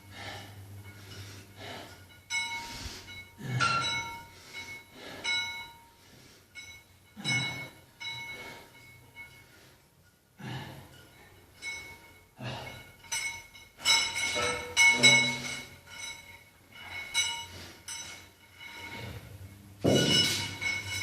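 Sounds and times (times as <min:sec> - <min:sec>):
metal weights clanking: 0:11.0 - 0:21.0.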